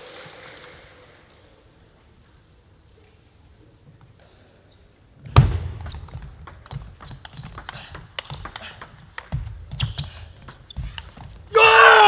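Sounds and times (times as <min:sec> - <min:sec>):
crowd clapping: 0:00.0 - 0:01.5.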